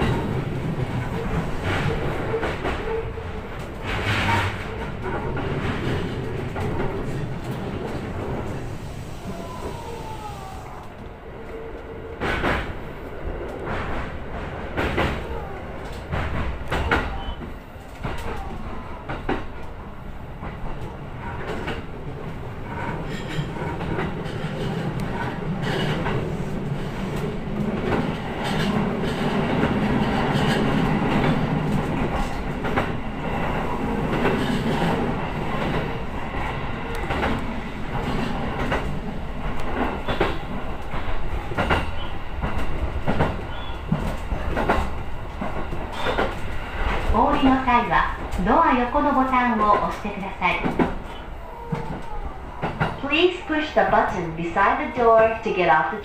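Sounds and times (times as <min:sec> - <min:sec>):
train wheels clacking over rail joints: 0:00.0 - 0:08.4, 0:12.2 - 0:12.9, 0:13.5 - 0:19.8, 0:20.4 - 0:53.8.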